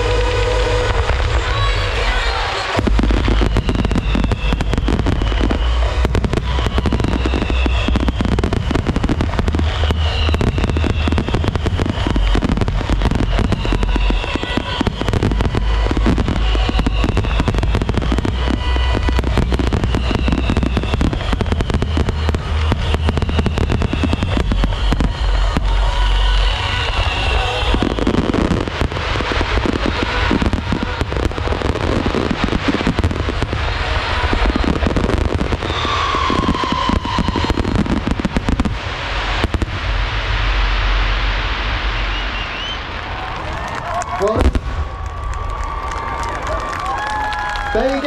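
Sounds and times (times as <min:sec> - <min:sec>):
heavy low rumble: 0:00.0 - 0:47.8
fireworks bangs and crackling: 0:00.0 - 0:48.0.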